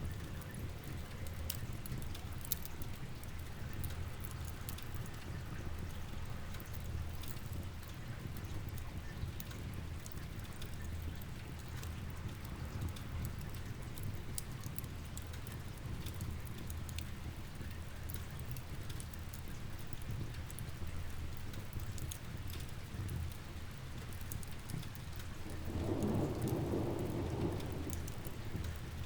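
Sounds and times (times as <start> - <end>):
rain hiss: 23.6 - 29.0.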